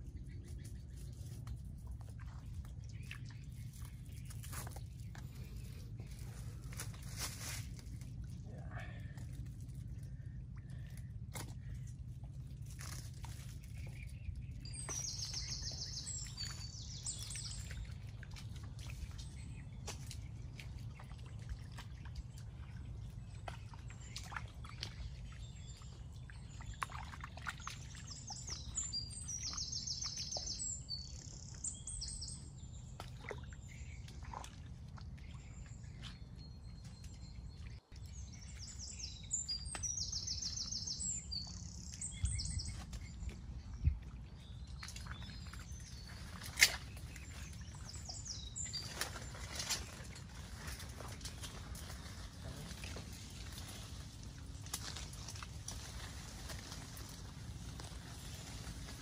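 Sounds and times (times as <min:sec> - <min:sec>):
steady low rumble: 0:00.0 - 0:59.0
birds trilling: 0:03.1 - 0:34.4.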